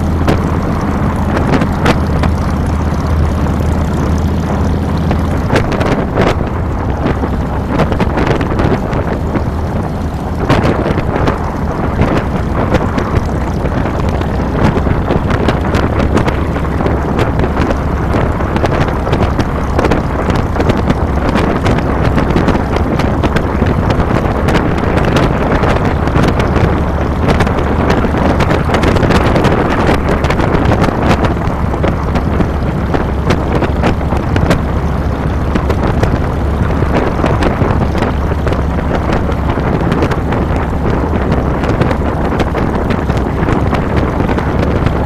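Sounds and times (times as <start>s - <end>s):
motorcycle engine running: 0.0s - 45.0s
wind buffeting microphone: 0.0s - 45.0s.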